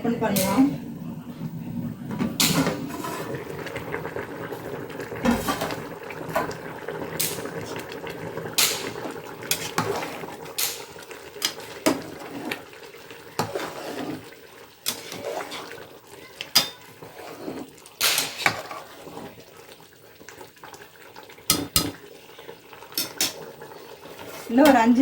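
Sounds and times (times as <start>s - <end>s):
metal cookware clinking and scraping: 2.1s - 3.4s, 5.2s - 6.6s, 8.6s - 12.6s, 13.4s - 14.2s, 14.8s - 15.8s, 16.4s - 19.3s, 21.5s - 22.0s, 22.9s - 23.4s, 24.1s - 25.0s.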